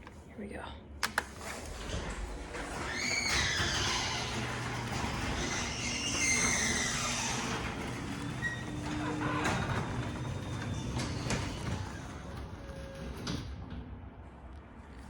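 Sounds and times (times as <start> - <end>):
sharp clicks: 1.0 - 1.4
garage door opener motor hum: 1.1 - 13.7
high squeaks from moving door: 1.9 - 13.4.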